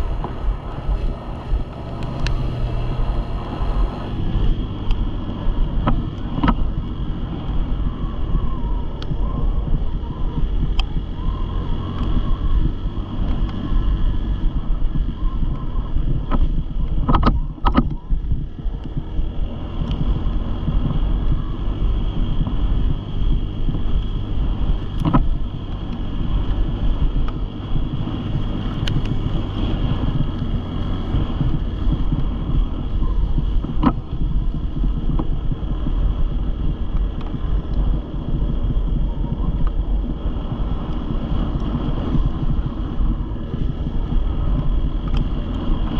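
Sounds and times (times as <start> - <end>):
sharp clicks: 0.0 - 3.0, 23.7 - 38.6, 39.4 - 45.9
dirt bike engine running: 0.0 - 45.9
wind buffeting microphone: 0.0 - 45.9.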